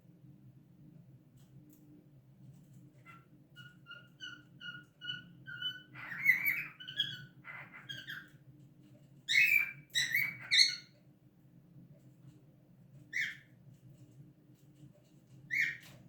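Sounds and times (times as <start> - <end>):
cockatiels chirping: 3.0 - 8.4, 9.3 - 11.0, 13.1 - 13.5, 15.5 - 16.0
harsh bird calls: 3.1 - 8.3, 9.3 - 10.9, 13.1 - 13.5.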